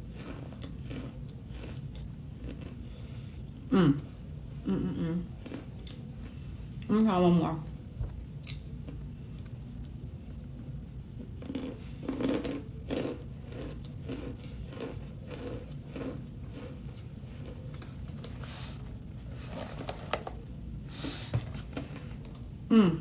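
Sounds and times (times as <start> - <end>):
person crunching and chewing: 0.0 - 3.0, 11.3 - 18.7.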